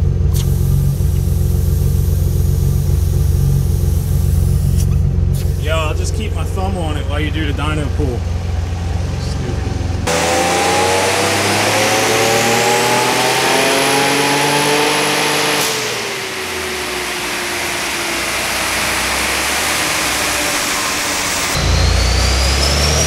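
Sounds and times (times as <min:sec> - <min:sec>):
car engine revving on dyno: 0:00.0 - 0:23.0
turbo whine: 0:00.0 - 0:23.0
sharp burst of engine let-off: 0:00.3 - 0:07.6, 0:10.1 - 0:23.0.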